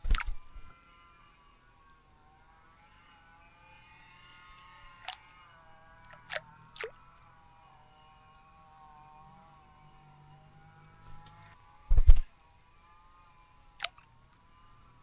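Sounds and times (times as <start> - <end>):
birds splashing water: 0.0 - 0.8, 4.3 - 7.4, 11.0 - 11.6, 13.8 - 14.1
faint wavering hum: 0.0 - 15.0.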